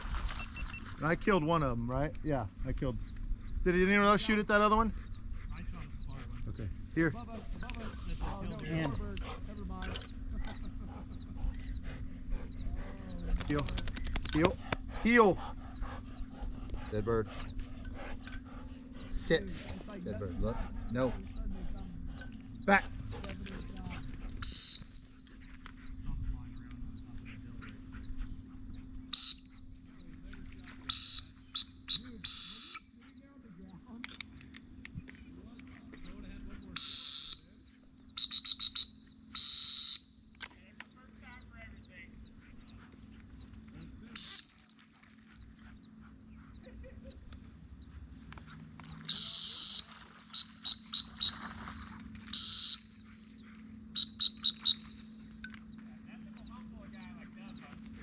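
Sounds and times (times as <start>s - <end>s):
faint insect drone: 0.0s - 58.0s
shrill whistle blasts: 24.4s - 25.3s, 29.1s - 29.5s, 30.9s - 33.0s, 36.7s - 37.6s, 38.2s - 40.4s, 44.2s - 45.0s, 49.0s - 51.6s, 52.3s - 53.3s, 53.9s - 55.1s.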